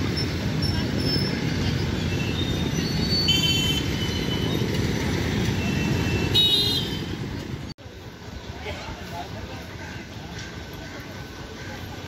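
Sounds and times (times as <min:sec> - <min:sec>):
electric train rumbling on rails: 0:00.0 - 0:06.3.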